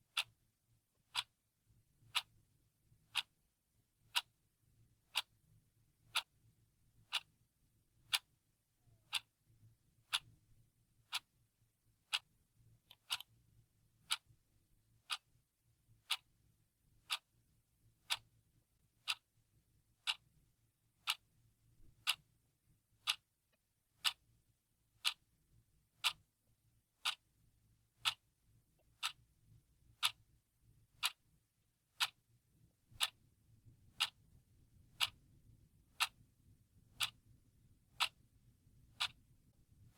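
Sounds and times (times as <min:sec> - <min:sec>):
clock ticking: 0:00.0 - 0:01.4, 0:02.0 - 0:02.4, 0:03.0 - 0:03.4, 0:04.0 - 0:04.4, 0:05.0 - 0:05.4, 0:06.0 - 0:06.3, 0:07.0 - 0:07.4, 0:08.0 - 0:09.3, 0:10.0 - 0:10.4, 0:11.0 - 0:11.4, 0:12.0 - 0:13.4, 0:14.0 - 0:15.4, 0:16.0 - 0:16.4, 0:17.0 - 0:17.4, 0:18.0 - 0:18.4, 0:19.0 - 0:19.4, 0:20.0 - 0:20.4, 0:21.0 - 0:22.3, 0:23.0 - 0:23.3, 0:24.0 - 0:24.3, 0:25.0 - 0:25.3, 0:26.0 - 0:26.3, 0:27.0 - 0:27.3, 0:28.0 - 0:30.3, 0:31.0 - 0:32.3, 0:32.9 - 0:39.9.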